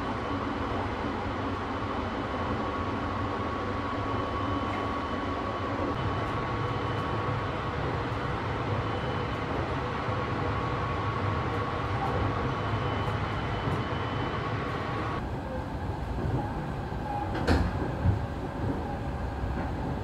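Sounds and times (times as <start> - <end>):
train interior rumble: 0.0 - 20.0.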